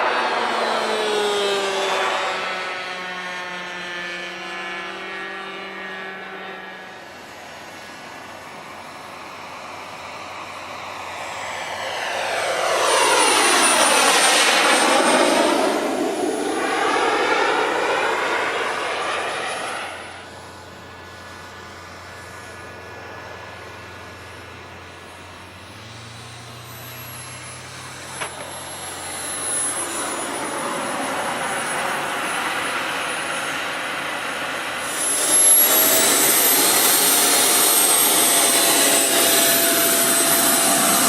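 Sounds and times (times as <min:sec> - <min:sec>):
model jet engine flyby: 0:00.0 - 0:41.0.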